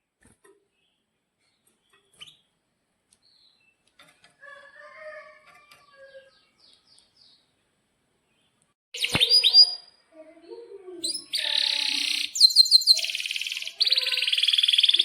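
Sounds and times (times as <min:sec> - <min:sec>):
canary chirping: 0:01.9 - 0:02.5, 0:09.0 - 0:09.9, 0:11.0 - 0:15.0.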